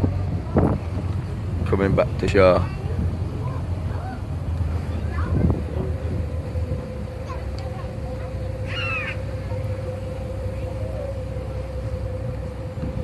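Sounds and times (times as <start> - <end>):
boat engine rumbling: 0.0 - 13.0
gull call: 8.4 - 9.8.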